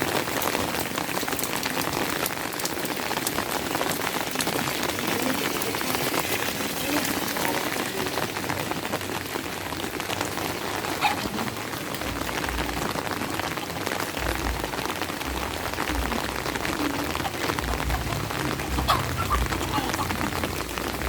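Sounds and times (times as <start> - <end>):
steady rain falling: 0.0 - 21.0
dull low rumbles: 14.2 - 21.0.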